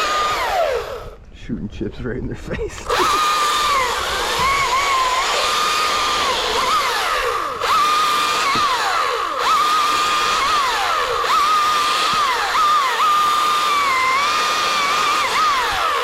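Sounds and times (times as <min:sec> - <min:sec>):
chainsaw cutting wood: 0:00.0 - 0:01.2, 0:02.8 - 0:16.0.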